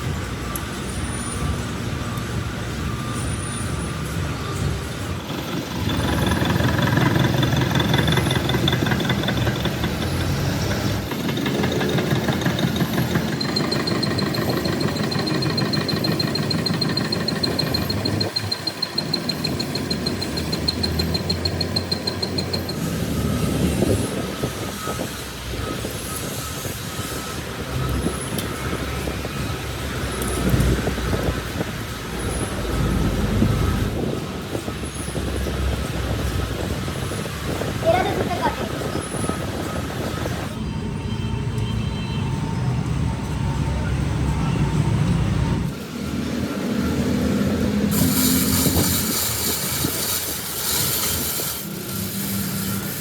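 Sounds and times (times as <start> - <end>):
metalworking machine rattling and whining: 0.0 - 53.0.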